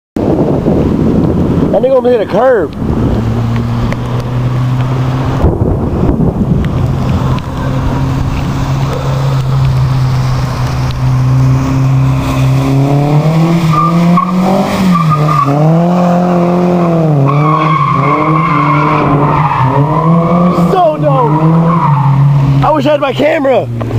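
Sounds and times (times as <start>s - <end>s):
car engine revving: 0.2s - 23.9s.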